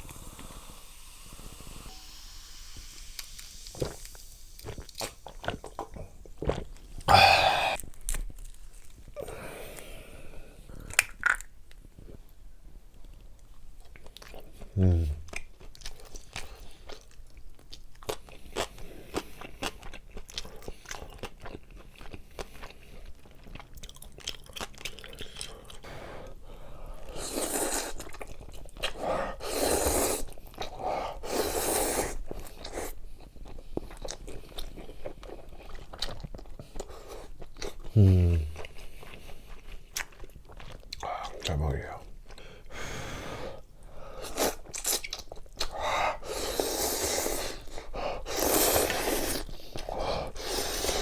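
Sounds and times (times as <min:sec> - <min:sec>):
crunching and chewing: 0:03.1 - 0:09.2, 0:12.9 - 0:25.9, 0:27.0 - 0:30.9, 0:32.1 - 0:42.6, 0:44.2 - 0:51.0
person humming: 0:07.1 - 0:07.8, 0:14.8 - 0:15.3, 0:38.0 - 0:38.6.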